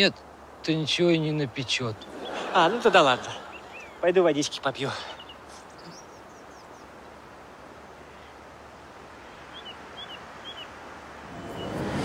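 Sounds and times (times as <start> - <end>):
soft outdoor hiss: 0.0 - 12.0
small bird chirping: 3.3 - 4.0, 5.1 - 7.0, 9.2 - 10.7.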